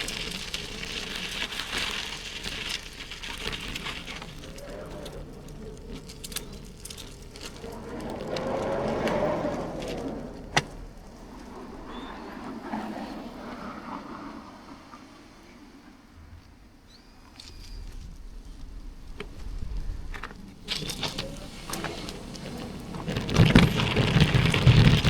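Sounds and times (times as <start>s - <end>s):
bicycle clicks and rattles: 0.0s - 12.1s, 19.1s - 25.0s
bicycle tyre road noise: 0.0s - 25.0s
vehicle passing: 3.4s - 16.2s.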